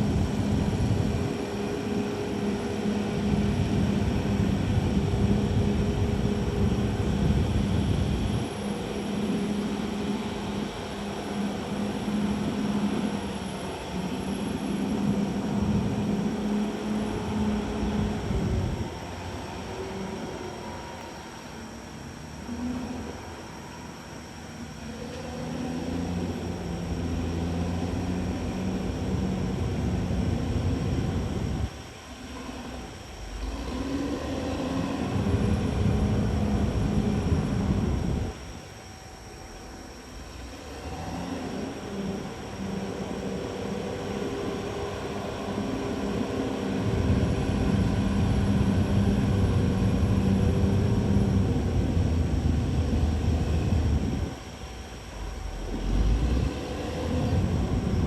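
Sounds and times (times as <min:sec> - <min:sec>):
bulldozer diesel engine running: 0:43.4 - 0:54.3.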